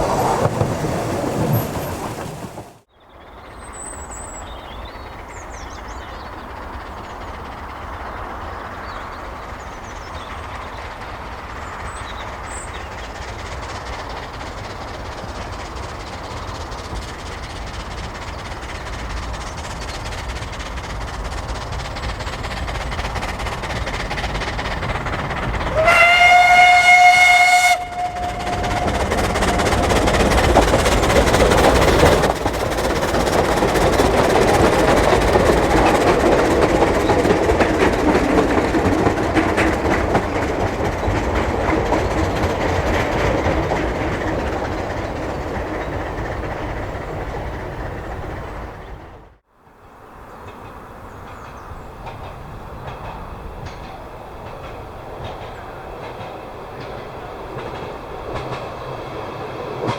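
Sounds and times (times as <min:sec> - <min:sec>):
wheels on rails: 0:00.0 - 0:49.4, 0:50.1 - 0:59.9
steam locomotive passing: 0:00.0 - 0:59.9
steam whistle: 0:25.7 - 0:30.2.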